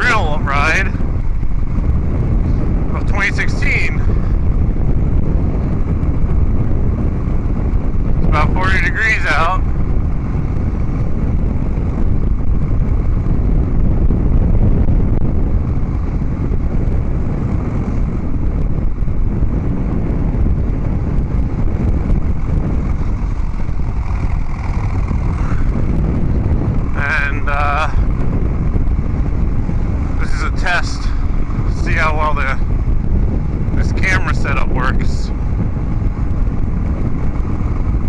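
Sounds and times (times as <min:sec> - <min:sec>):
motorcycle engine rumbling: 0:00.0 - 0:38.0.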